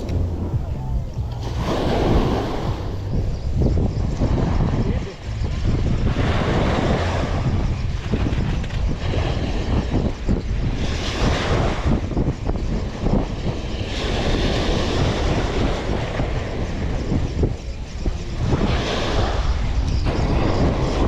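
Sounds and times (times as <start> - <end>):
heavy low rumble: 0.0 - 10.2
waves washing: 0.0 - 21.0
wind buffeting microphone: 0.0 - 21.0.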